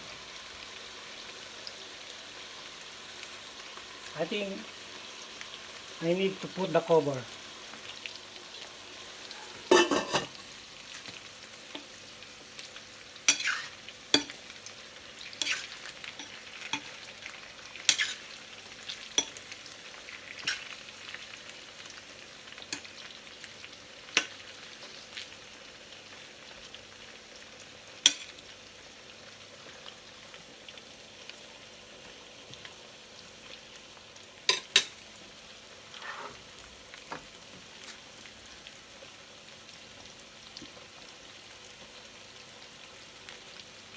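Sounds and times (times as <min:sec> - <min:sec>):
chicken sizzling in a frying pan: 0:00.0 - 0:43.9.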